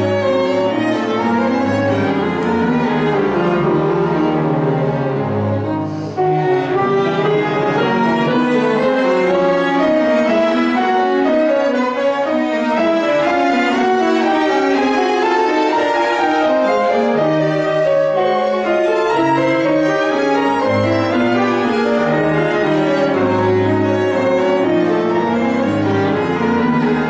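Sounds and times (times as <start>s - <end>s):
cello: 0.0s - 27.0s
piano: 0.0s - 27.0s
violin: 0.0s - 27.0s.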